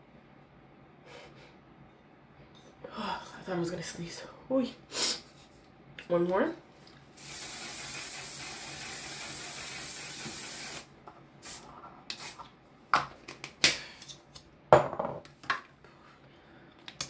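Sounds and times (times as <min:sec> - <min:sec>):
spray bottle hissing: 0:07.2 - 0:12.4.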